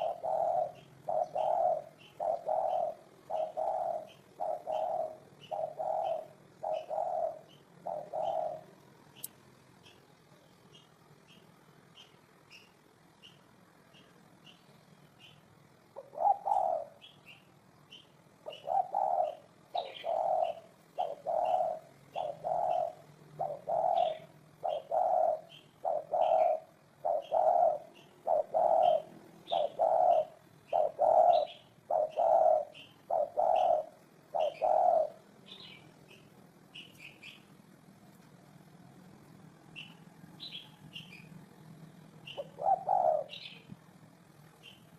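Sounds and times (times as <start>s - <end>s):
dove cooing: 0.0s - 9.0s, 15.8s - 17.4s, 18.4s - 37.4s, 42.2s - 43.9s.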